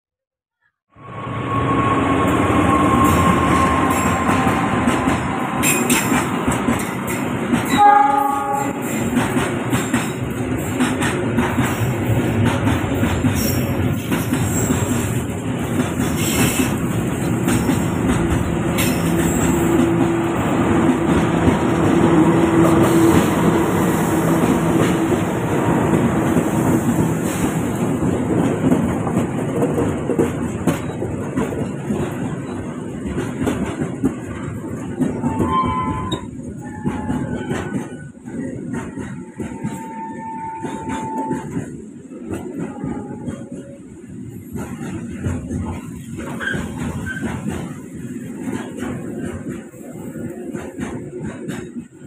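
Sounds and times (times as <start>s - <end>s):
train wheels on track: 1.0s - 52.0s
train horn blast: 7.7s - 9.0s, 35.2s - 37.8s, 39.2s - 41.6s, 42.6s - 43.6s.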